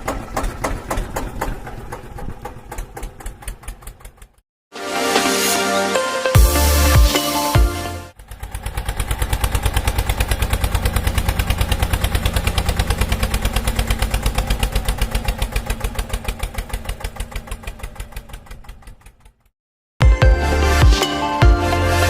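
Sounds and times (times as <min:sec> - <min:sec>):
engine idling with rapid chug: 0:00.0 - 0:04.4, 0:08.1 - 0:19.5.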